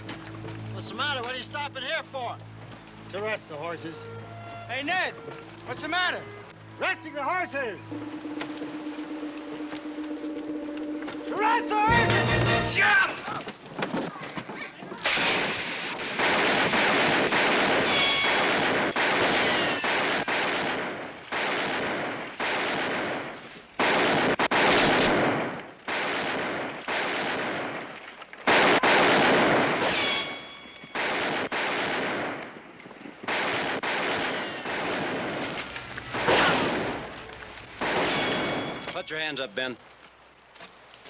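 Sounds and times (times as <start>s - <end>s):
gunshots with echoing tails: 15.1s - 39.1s.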